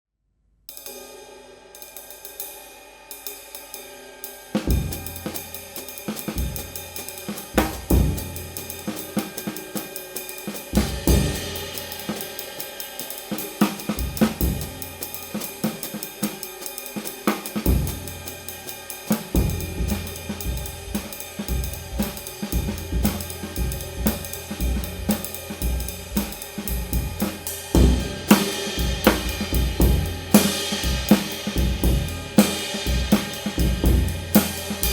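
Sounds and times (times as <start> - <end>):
ride cymbal: 0.7 - 34.9
snare drum: 4.6 - 34.9
bass drum: 4.7 - 5.5, 6.2 - 9.6, 10.8 - 11.9, 13.6 - 16.0, 17.4 - 18.5, 19.2 - 34.9.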